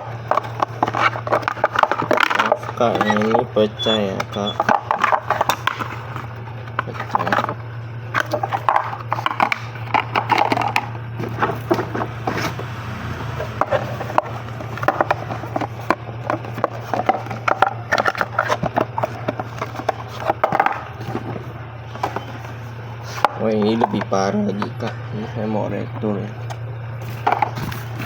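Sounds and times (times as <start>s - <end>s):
racks clicking and knocking: 8.2s - 22.3s.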